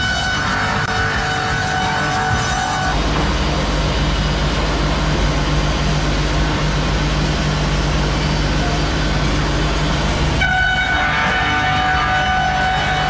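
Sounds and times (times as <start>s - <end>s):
heavy engine rumbling: 0.0s - 13.0s.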